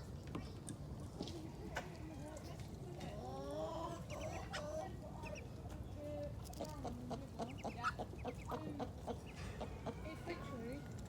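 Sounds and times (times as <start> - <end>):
chickens clucking: 3.1 - 5.8, 6.5 - 10.6.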